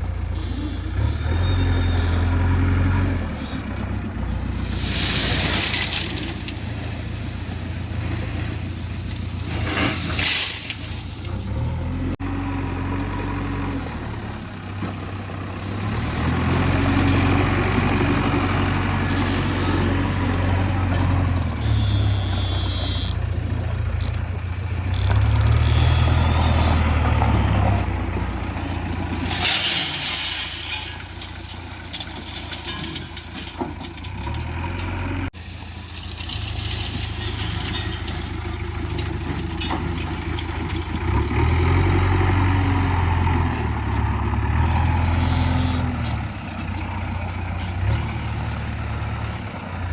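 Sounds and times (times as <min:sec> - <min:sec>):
diesel engine revving: 0:00.0 - 0:32.9, 0:33.5 - 0:49.9
crushed stone pouring: 0:04.4 - 0:11.8.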